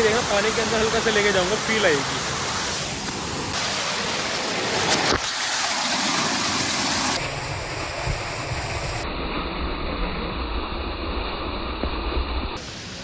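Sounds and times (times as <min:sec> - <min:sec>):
waterfall roaring: 0:00.0 - 0:09.0, 0:12.6 - 0:13.0.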